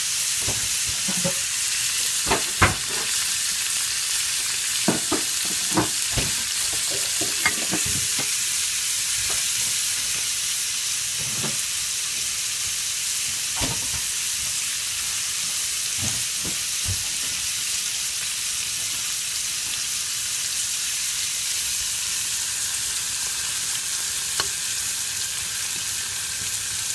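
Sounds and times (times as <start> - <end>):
vegetables sizzling in oil: 0.0 - 26.9
fork scraping and tapping pan: 6.7 - 8.3.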